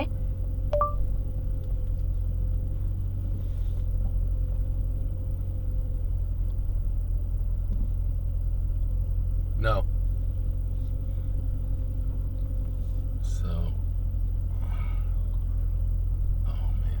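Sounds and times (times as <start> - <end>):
engine rumbling inside car cabin: 0.0 - 17.0
rising two-note chime: 0.8 - 1.0.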